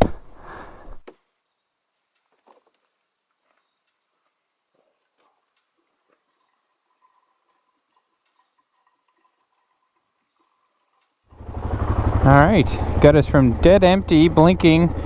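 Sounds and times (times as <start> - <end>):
crickets trilling: 0.4 - 12.2.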